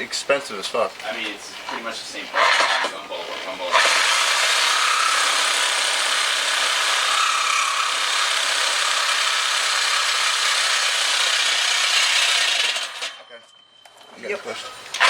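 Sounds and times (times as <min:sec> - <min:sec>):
power tool grinding metal pipe: 0:02.4 - 0:13.3.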